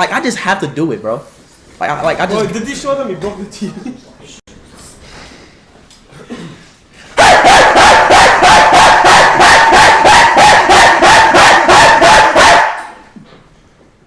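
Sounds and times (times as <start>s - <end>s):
dog barking rapidly: 7.2s - 13.0s.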